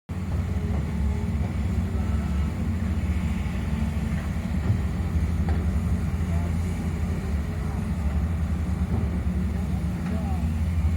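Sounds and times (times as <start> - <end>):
heavy machinery engine rumbling: 0.1 - 10.9.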